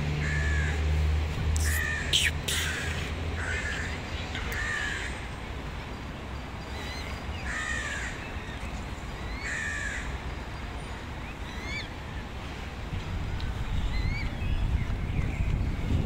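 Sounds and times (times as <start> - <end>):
bird harsh caw-like calls: 0.2 - 1.0, 1.6 - 5.3, 6.8 - 8.4, 9.3 - 10.2.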